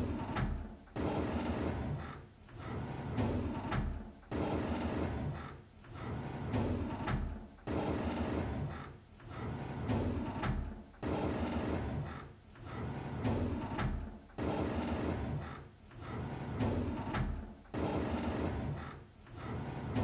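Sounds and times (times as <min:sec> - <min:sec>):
drawer sliding open: 0:14.8 - 0:20.0.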